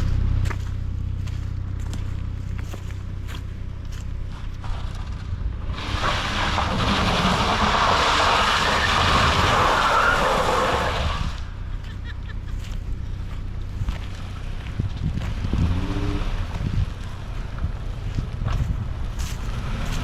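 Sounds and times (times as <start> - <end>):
low engine hum: 0.0 - 20.0
car tyres hissing on wet ground: 5.7 - 11.6.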